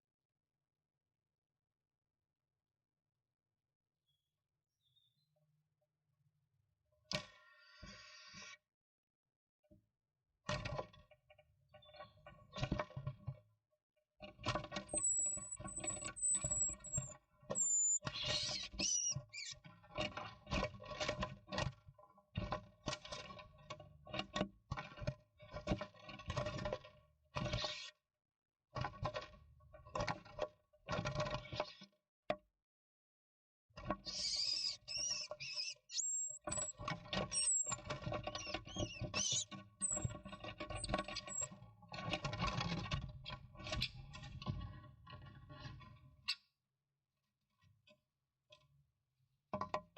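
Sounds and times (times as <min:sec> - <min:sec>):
scratching inside wooden nestbox: 0:14.9 - 0:18.0, 0:34.1 - 0:37.8, 0:38.5 - 0:41.5
thin high bird calls: 0:14.9 - 0:19.5, 0:34.1 - 0:37.8, 0:38.4 - 0:40.1, 0:40.7 - 0:41.5.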